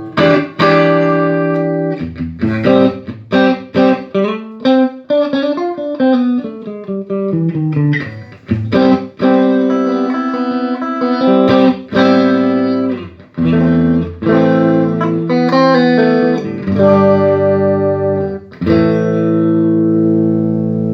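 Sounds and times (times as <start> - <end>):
electric guitar notes and chords: 0.0 - 20.9.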